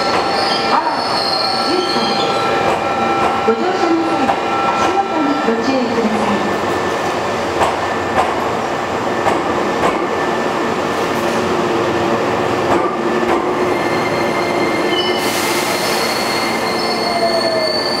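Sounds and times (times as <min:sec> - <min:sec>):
high wheel squeal: 0:00.3 - 0:02.6, 0:13.7 - 0:18.0
hiss: 0:15.2 - 0:16.3.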